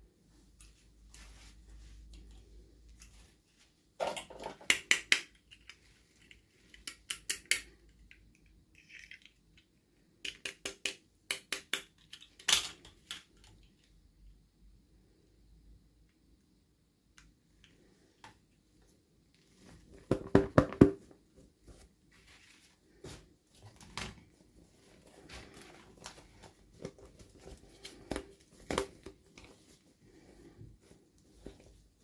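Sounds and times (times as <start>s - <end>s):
plastic parts clicking: 4.1s - 13.9s
light packaging crinkling: 21.7s - 32.0s.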